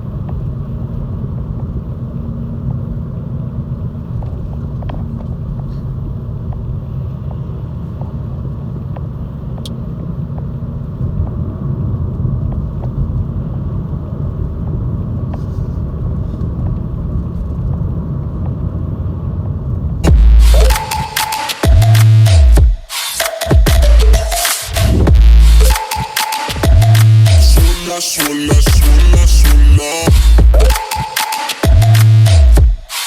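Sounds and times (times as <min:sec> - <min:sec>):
diesel engine running: 0:18.9 - 0:21.0, 0:23.6 - 0:25.8, 0:26.5 - 0:30.8, 0:31.6 - 0:32.8
loud electronic music: 0:20.0 - 0:33.0.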